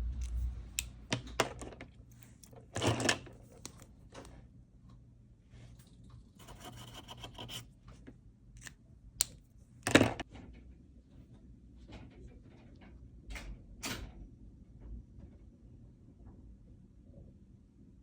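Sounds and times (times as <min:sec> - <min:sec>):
drawing tool scratching paper: 0:06.4 - 0:07.7.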